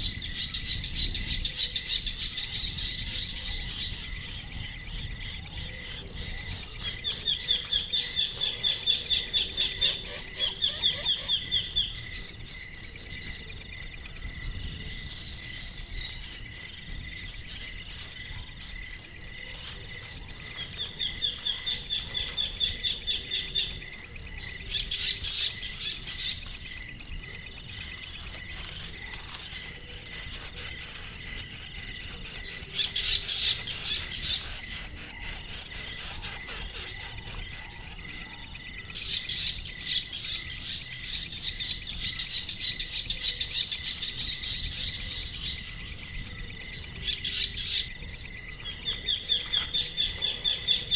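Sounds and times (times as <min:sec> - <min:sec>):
insect chirping: 0:00.0 - 0:50.9
bird trills: 0:06.7 - 0:12.0.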